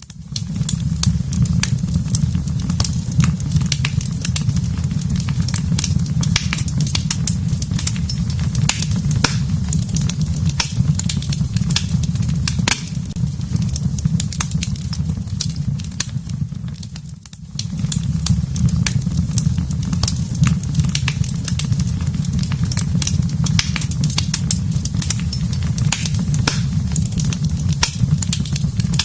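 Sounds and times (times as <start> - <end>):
wood fire crackling and popping: 0.0 - 29.0
steady low rumble: 2.1 - 15.3, 22.4 - 29.0.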